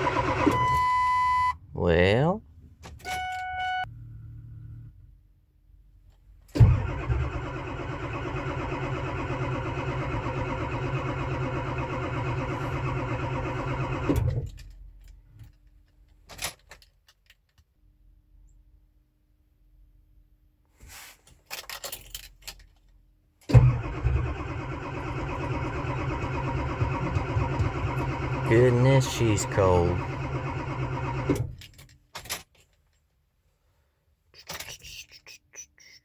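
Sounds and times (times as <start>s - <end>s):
diesel engine cranking: 0.0s - 0.8s, 6.6s - 14.4s, 23.5s - 31.6s.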